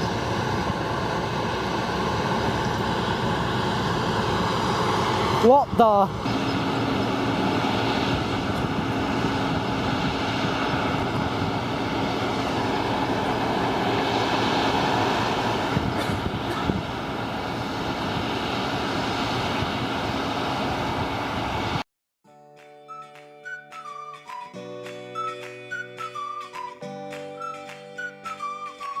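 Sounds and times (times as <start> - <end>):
combine harvester running: 0.0 - 21.8.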